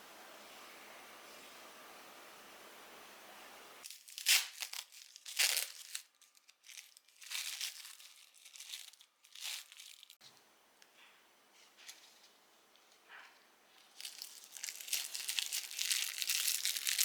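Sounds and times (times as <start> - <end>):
crinkling and tearing rustles: 3.8 - 10.4, 11.6 - 17.0.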